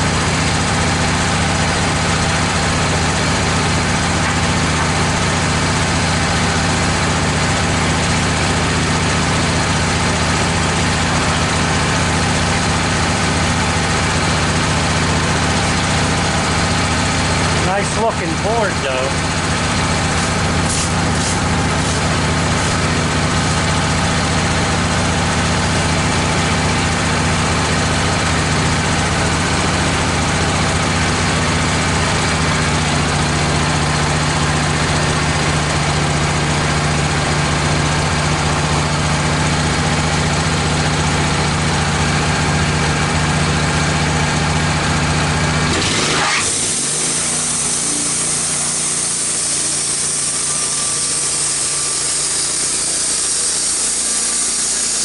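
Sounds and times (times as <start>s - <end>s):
sawmill engine idling: 0.0s - 55.0s
band saw hissing through log: 20.1s - 22.9s, 45.8s - 55.0s.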